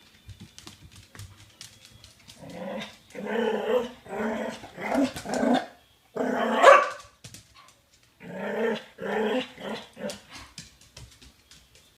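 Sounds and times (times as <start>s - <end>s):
dog growling and barking: 2.4s - 7.0s, 8.2s - 10.3s.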